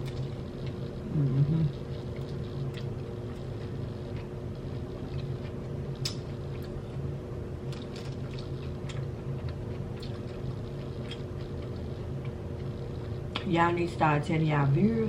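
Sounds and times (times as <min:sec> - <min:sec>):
steady low hum: 0:00.0 - 0:15.0
wet chewing mouth sounds: 0:07.6 - 0:12.7.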